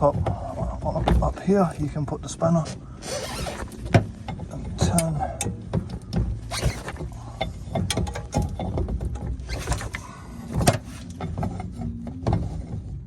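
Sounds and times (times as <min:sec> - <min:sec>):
low handling rumble: 0:00.0 - 0:13.0.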